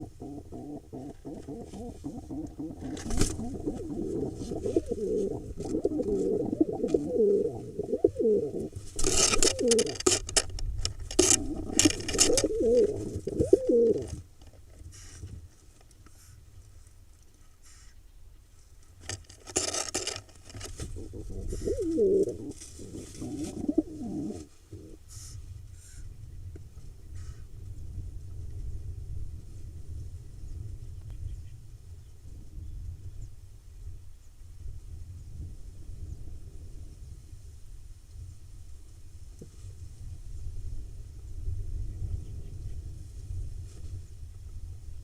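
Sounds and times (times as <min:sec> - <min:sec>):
pigeons cooing: 0:00.0 - 0:10.1, 0:11.2 - 0:14.2, 0:20.6 - 0:25.0
rustling noise: 0:01.1 - 0:17.9, 0:18.6 - 0:26.0, 0:42.8 - 0:44.8.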